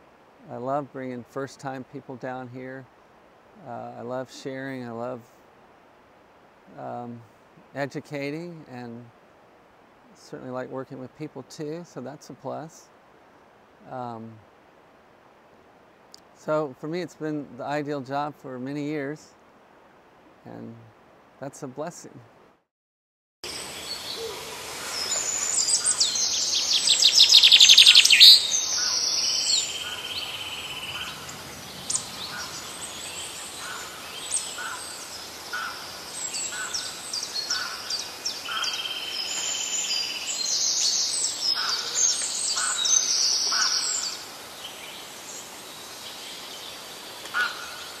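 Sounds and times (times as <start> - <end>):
birds chirping and trilling: 23.5 - 48.0
loud rapid bird trill: 23.8 - 44.2.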